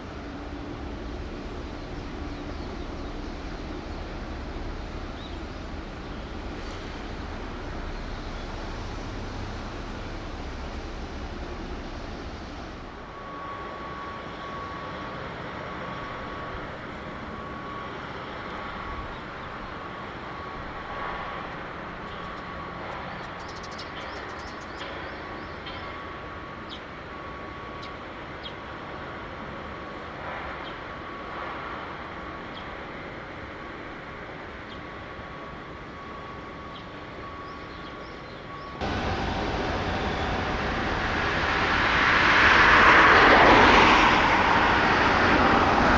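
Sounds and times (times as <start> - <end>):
shipyard background noise: 0.0 - 45.9
rush of noise: 38.8 - 45.9.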